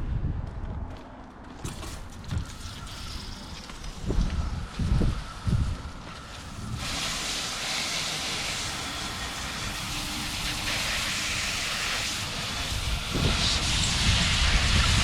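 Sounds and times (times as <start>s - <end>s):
water spraying from hose: 2.5s - 4.0s, 6.2s - 15.0s.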